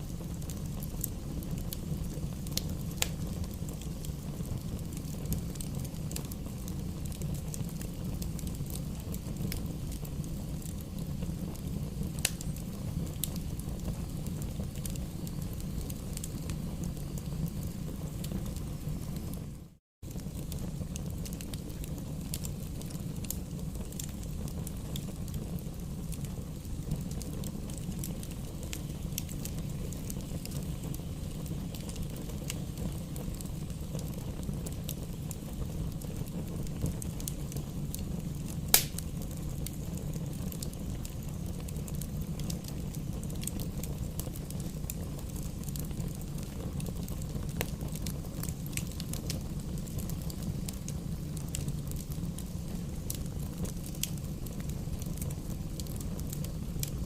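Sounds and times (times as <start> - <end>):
campfire burning: 0.0 - 57.0
fire crackling: 0.0 - 57.0
loud sharp pop from fire: 12.2 - 12.5, 38.7 - 39.3.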